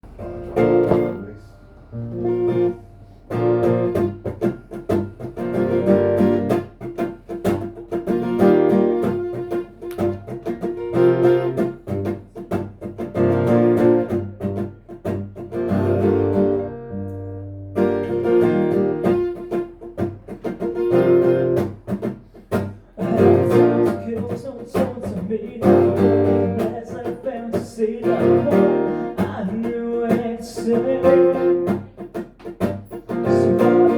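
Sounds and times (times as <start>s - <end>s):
guitar strumming: 0.0s - 33.9s.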